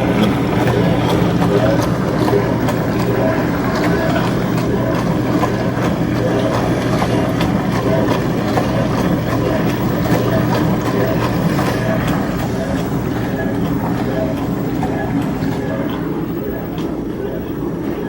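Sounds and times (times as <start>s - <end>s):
dishwasher motor hum: 0.0s - 18.0s
water spraying inside dishwasher: 0.0s - 18.0s.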